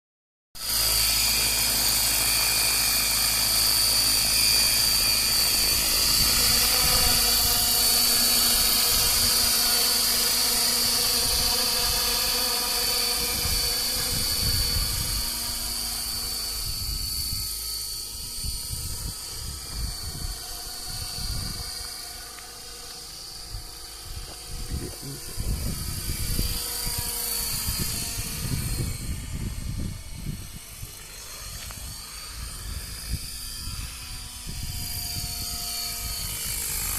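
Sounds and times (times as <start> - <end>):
model helicopter rotor whining: 0.6 - 36.9.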